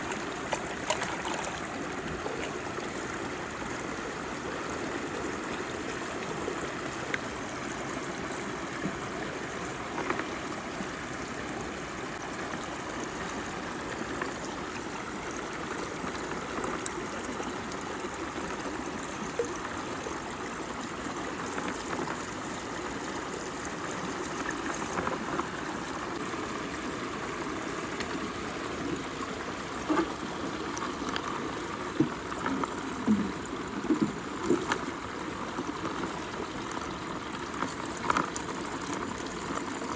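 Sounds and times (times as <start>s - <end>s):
short water plops: 0.0s - 2.6s
water gurgling down a hole: 0.0s - 39.9s.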